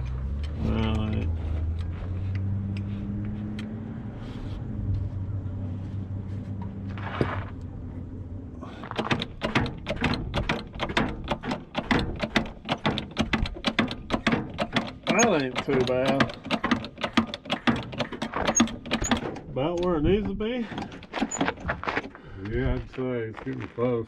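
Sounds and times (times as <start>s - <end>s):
vehicle engine humming: 0.0s - 23.4s
sharp mechanical clicks: 9.0s - 19.9s.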